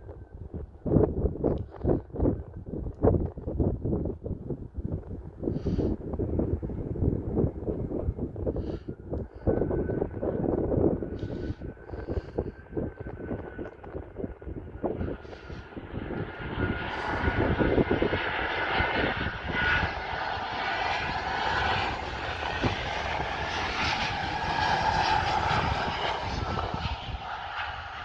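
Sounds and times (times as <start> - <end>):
wind rumble on microphone: 0.0 - 28.0
jet engines passing: 6.5 - 28.0.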